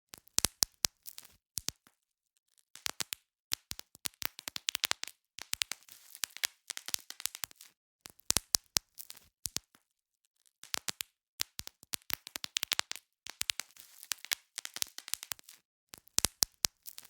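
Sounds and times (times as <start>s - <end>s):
bubble wrap popping: 2.8s - 9.8s, 10.6s - 17.0s.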